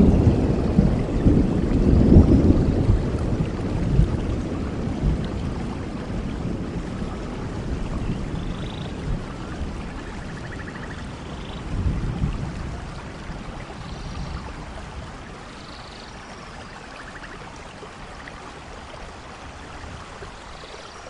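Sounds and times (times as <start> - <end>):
thunder rumbling: 0.0 - 15.3
steady rainfall: 0.0 - 21.0.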